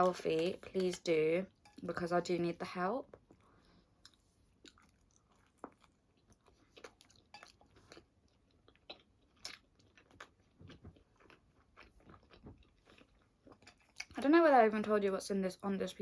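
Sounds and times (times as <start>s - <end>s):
person chewing pizza: 3.1s - 14.2s.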